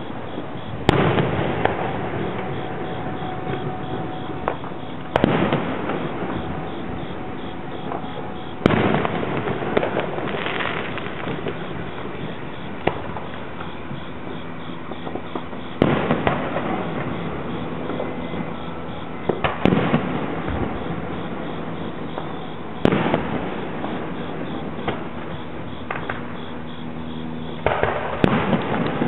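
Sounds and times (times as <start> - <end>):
firework shells bursting: 0.0 - 18.6
firework crackle and rumble: 0.0 - 29.0.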